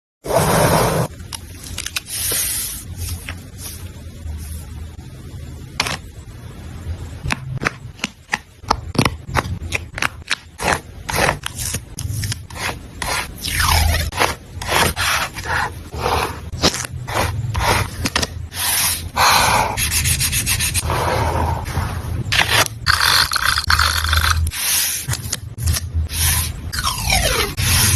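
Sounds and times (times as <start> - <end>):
paper rubbing and scraping: 10.6 - 19.1, 19.8 - 26.6, 27.4 - 27.9.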